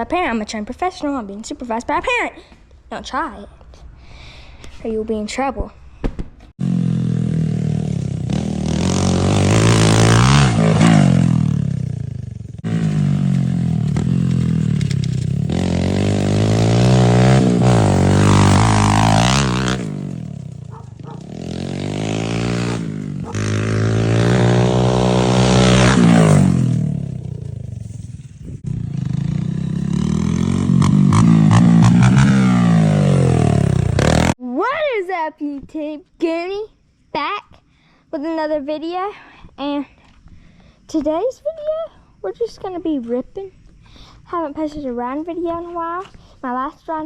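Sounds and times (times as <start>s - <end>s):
dirt bike engine revving: 6.6s - 34.4s.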